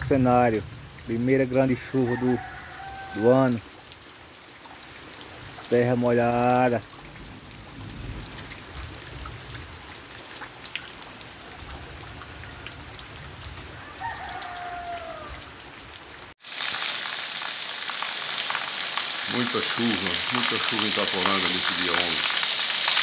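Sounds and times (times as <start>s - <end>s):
water pouring off roof: 0.0s - 15.3s, 16.3s - 23.0s
heavy downpour on street: 0.0s - 23.0s
rain falling on wet ground: 0.0s - 23.0s
rooster crowing: 1.9s - 3.6s, 13.7s - 15.6s.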